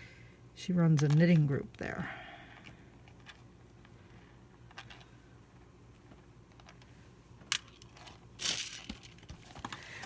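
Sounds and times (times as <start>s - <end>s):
small hard objects clinking: 7.6s - 9.7s.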